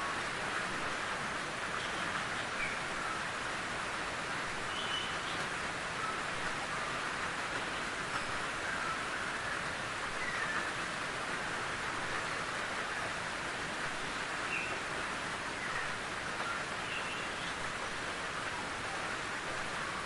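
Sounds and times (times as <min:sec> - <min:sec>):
rain falling in a forest: 0:00.0 - 0:20.0.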